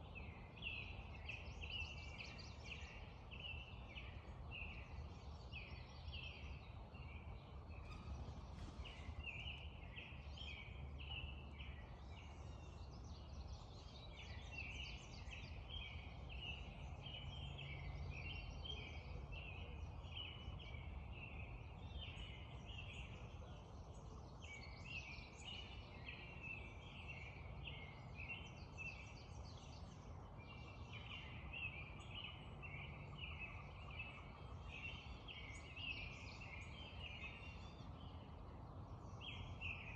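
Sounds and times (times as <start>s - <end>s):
low steady rumble: 0.0s - 18.5s
birds chirping and singing: 0.0s - 39.9s.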